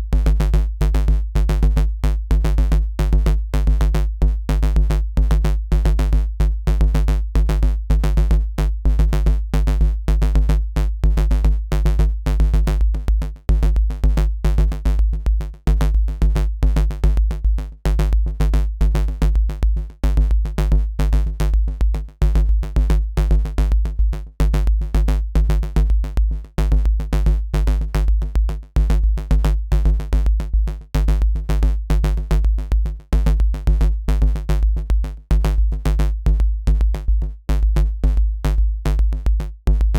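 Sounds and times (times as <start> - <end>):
deep sub-bass: 0.0 - 39.9
drum machine beat: 12.5 - 39.9.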